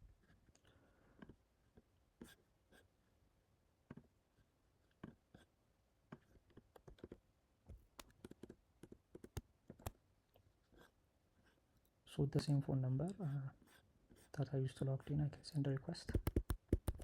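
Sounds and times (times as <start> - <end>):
keyboard and mouse clicks: 6.1 - 7.2, 7.9 - 10.0, 15.8 - 17.0.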